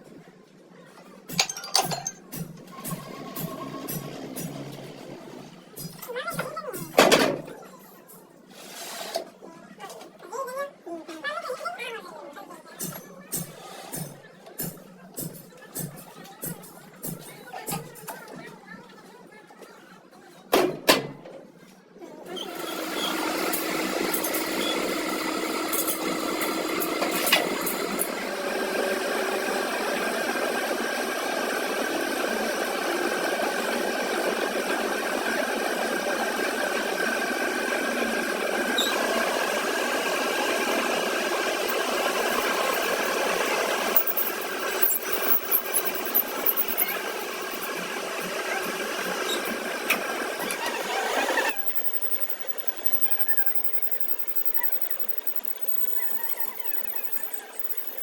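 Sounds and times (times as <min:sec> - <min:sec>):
machine motor humming: 0:40.2 - 0:58.0.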